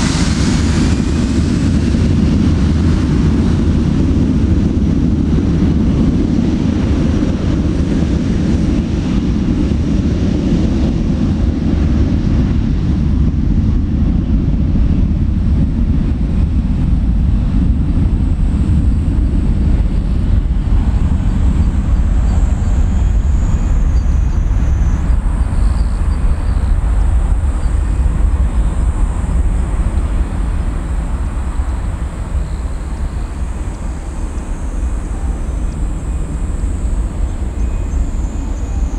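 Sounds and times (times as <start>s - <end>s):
jet engines rumbling: 0.0s - 38.9s
faint high whine: 20.7s - 38.9s.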